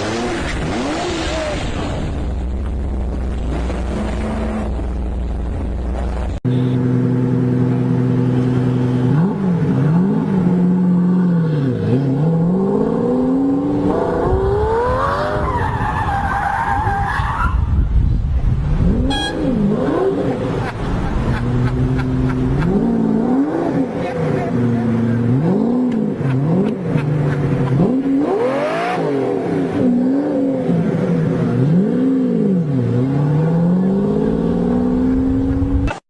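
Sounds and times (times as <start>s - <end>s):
car engine revving: 18.7s - 36.0s.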